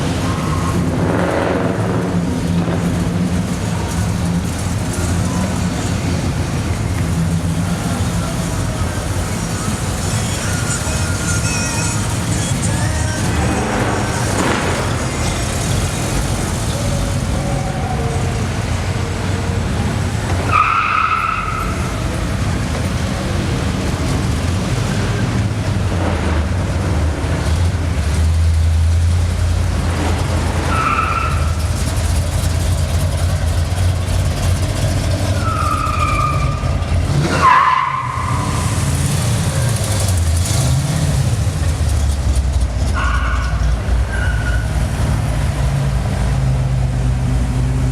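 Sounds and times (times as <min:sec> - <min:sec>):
car engines rumbling: 0:00.0 - 0:47.9.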